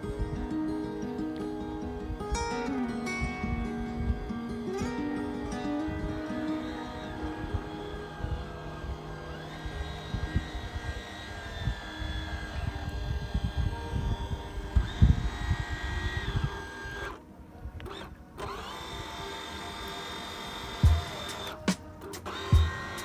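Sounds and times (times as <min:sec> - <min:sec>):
electric motors whining: 0:00.0 - 0:23.0
wind thumping on microphone: 0:09.7 - 0:16.6.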